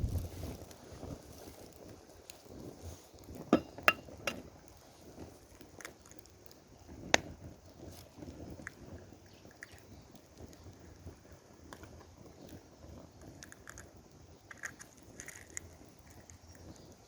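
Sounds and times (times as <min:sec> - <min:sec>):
utensils clinking on cookware: 0:03.6 - 0:04.4.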